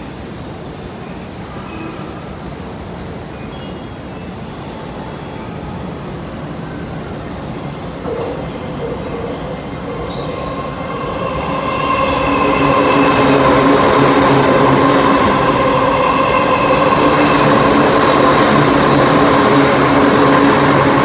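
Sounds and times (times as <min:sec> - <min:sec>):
electric train rumble: 0:04.3 - 0:21.0
steady tones: 0:04.3 - 0:21.0.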